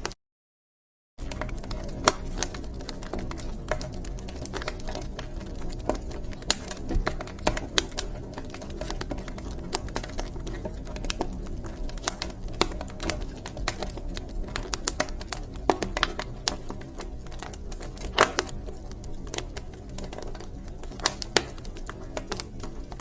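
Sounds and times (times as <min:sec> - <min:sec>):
wood fire crackling: 0:01.2 - 0:23.0.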